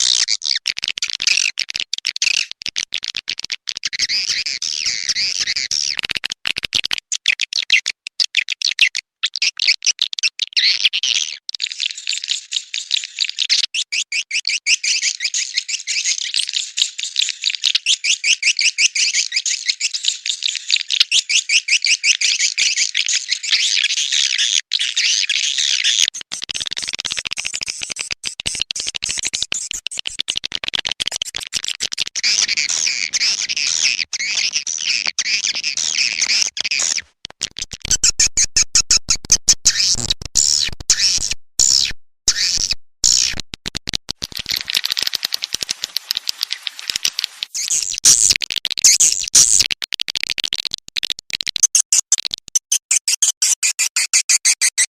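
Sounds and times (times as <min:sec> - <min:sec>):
swiftlets chirping and twittering: 0:32.2 - 0:37.0, 0:44.2 - 0:49.6.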